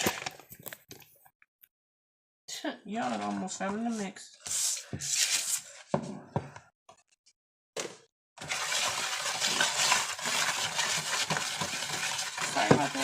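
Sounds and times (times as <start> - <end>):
powder being stirred scraping: 8.4 - 13.0.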